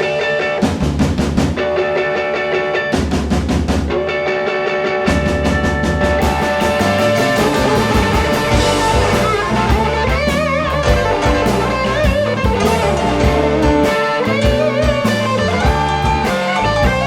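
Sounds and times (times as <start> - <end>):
blues band playing: 0.0 - 17.0
lead guitar with vibrato bends: 3.9 - 17.0.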